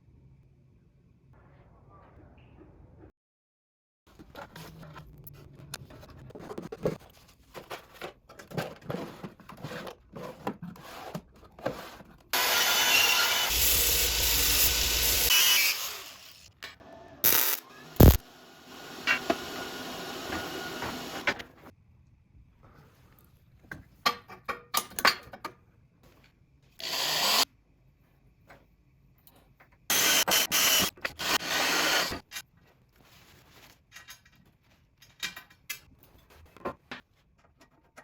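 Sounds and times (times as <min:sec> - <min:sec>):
tool handling clatter and knocks: 0:05.8 - 0:12.1
power tool running loudly: 0:12.4 - 0:16.5, 0:17.2 - 0:21.3.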